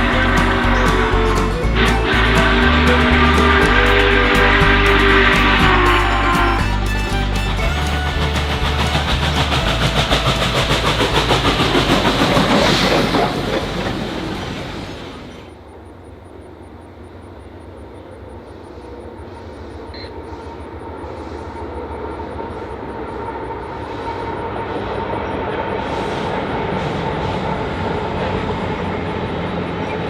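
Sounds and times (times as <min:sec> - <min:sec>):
low steady rumble: 0:00.0 - 0:14.4
train wheels clattering on rails: 0:00.0 - 0:30.0.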